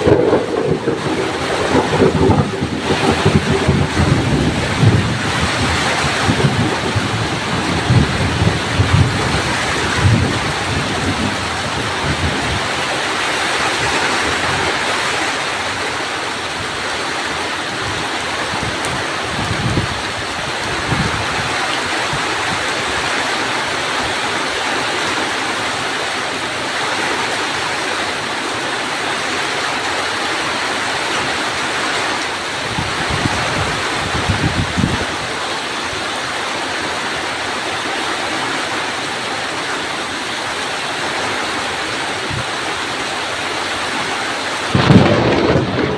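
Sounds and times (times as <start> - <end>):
low thunder rumbling: 0.0 - 14.9, 44.6 - 45.9
heavy rain pouring: 0.0 - 45.9.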